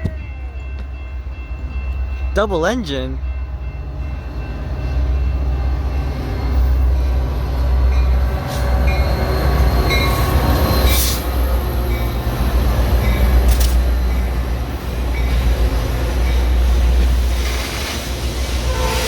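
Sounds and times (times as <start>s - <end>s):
diesel train rumbling past: 0.0s - 19.0s
train wheel squeals: 8.0s - 12.3s, 16.1s - 19.0s.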